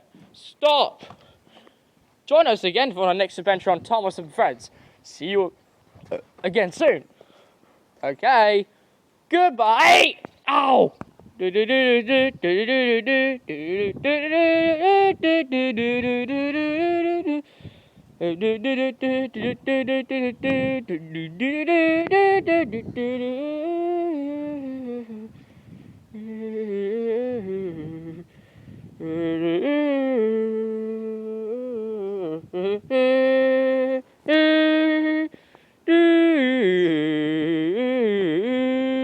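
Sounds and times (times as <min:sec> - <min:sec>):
person humming a tune: 0:11.4 - 0:17.5, 0:18.2 - 0:25.4, 0:26.1 - 0:39.0.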